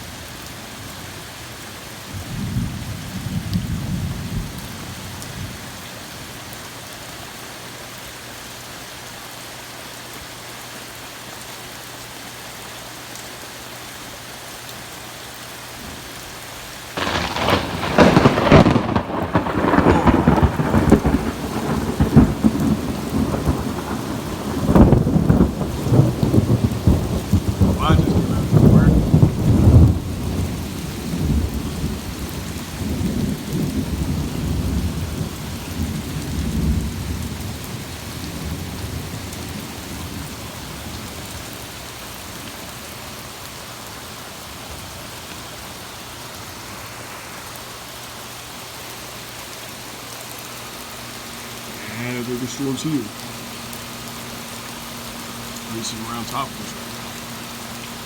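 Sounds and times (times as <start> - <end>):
heavy rain: 0.0 - 58.0
thunder cracking and rumbling: 2.1 - 5.6, 17.0 - 41.4.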